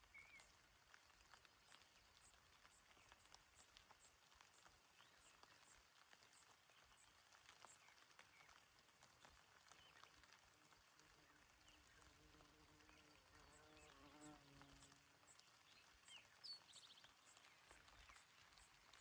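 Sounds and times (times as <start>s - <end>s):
gentle rain on grass: 0.0s - 19.0s
bird chirp: 12.7s - 19.0s.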